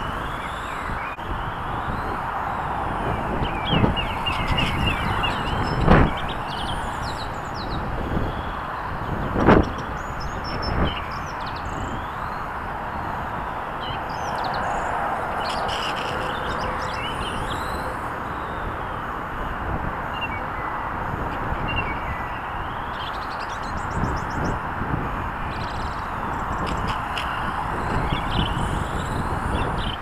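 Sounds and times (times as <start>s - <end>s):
high electric motor whine: 0.0s - 30.0s
tyre and air noise: 0.0s - 30.0s.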